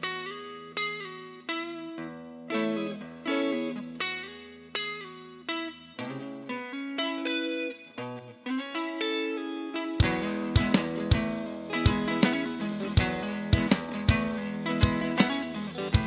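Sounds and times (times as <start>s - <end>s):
picked guitar notes: 0.0s - 16.0s
sharp percussive hits: 10.0s - 16.0s.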